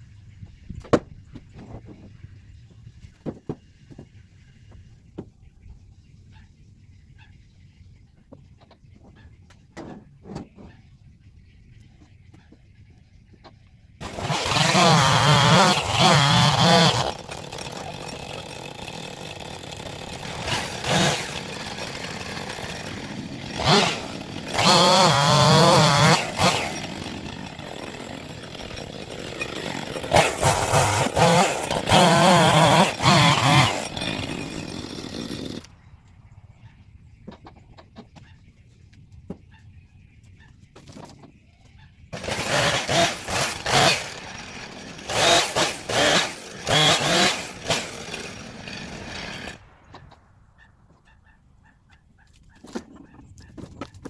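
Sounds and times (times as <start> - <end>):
chainsaw idling and revving: 14.0 - 35.7, 42.1 - 49.7.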